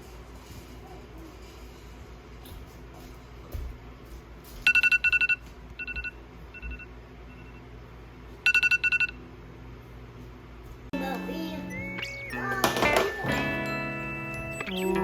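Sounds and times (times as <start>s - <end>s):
electronic kitchen timer beeping: 4.6s - 7.7s, 8.4s - 9.2s, 11.0s - 15.0s.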